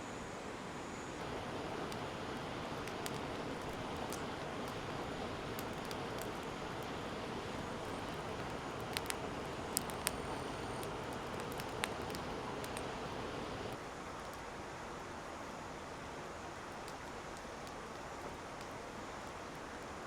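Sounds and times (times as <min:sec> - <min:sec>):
fire rushing hiss: 0:01.1 - 0:13.8
fire crackling pops: 0:01.2 - 0:14.4, 0:16.8 - 0:19.8.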